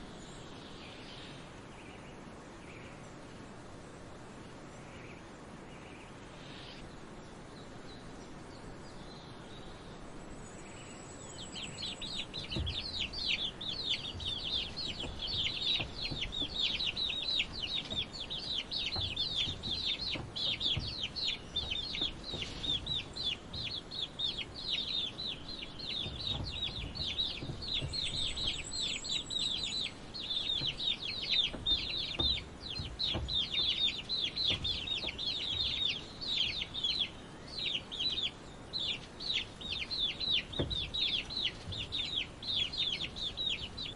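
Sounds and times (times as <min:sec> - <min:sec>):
chicks peeping: 0:11.4 - 0:43.9.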